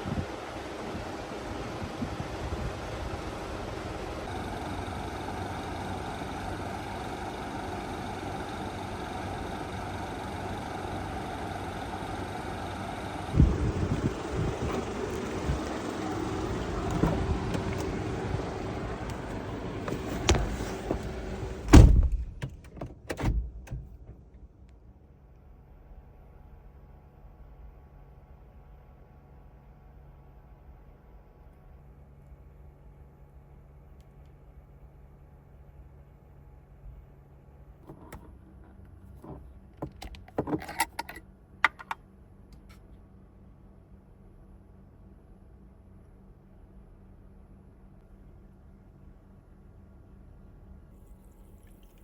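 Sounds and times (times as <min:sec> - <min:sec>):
outside noise: 0:00.0 - 0:52.0
vehicle door shutting: 0:13.4 - 0:24.3.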